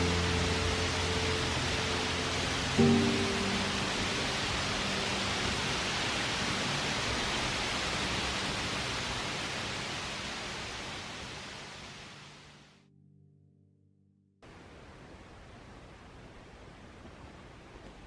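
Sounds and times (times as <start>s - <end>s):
waterfall rushing: 0.0s - 12.6s.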